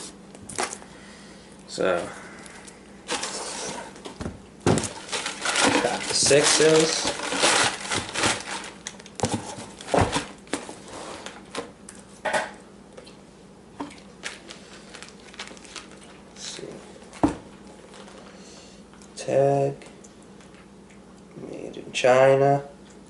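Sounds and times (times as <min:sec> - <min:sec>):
packaging crinkling: 0:04.7 - 0:11.4, 0:13.9 - 0:18.4.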